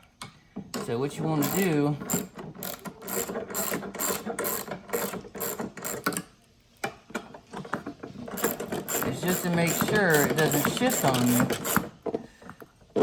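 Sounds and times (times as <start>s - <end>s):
ratchet wrench clicking: 1.4s - 6.2s, 8.4s - 11.9s.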